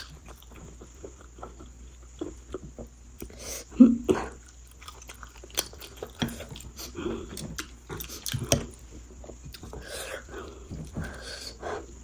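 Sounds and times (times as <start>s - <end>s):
chewing and biting food: 0.0s - 3.3s, 4.3s - 11.2s.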